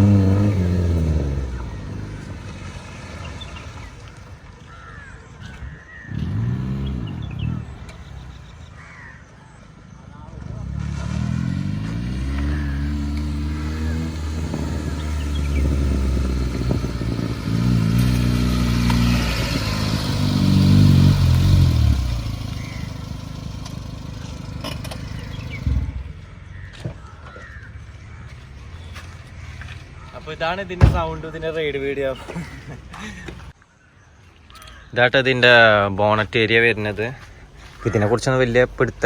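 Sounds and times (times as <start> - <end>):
car engine accelerating: 0.0 - 5.1, 5.9 - 8.9, 10.3 - 26.7, 29.6 - 33.6.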